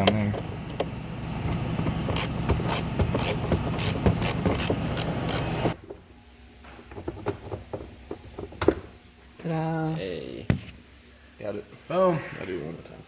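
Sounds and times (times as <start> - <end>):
ratchet wrench clicking: 2.1 - 5.5.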